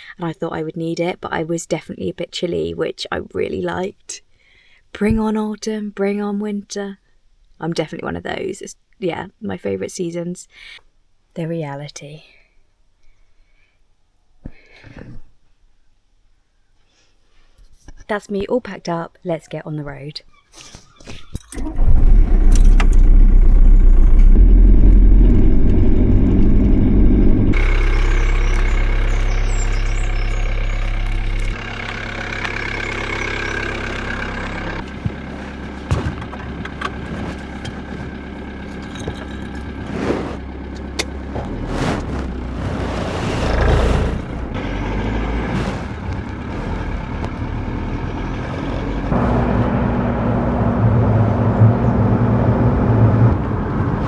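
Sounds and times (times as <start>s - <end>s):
vehicle engine and road noise: 21.5s - 54.0s.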